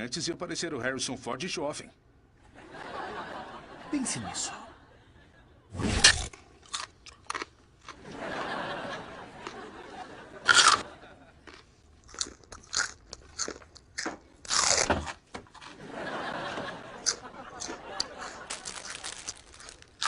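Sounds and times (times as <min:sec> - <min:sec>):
crisp food bites: 0:06.0 - 0:08.0, 0:10.5 - 0:10.8, 0:11.4 - 0:15.7, 0:17.0 - 0:20.0
crunchy chewing: 0:06.0 - 0:08.0, 0:10.5 - 0:10.8, 0:11.4 - 0:15.8, 0:17.0 - 0:20.0.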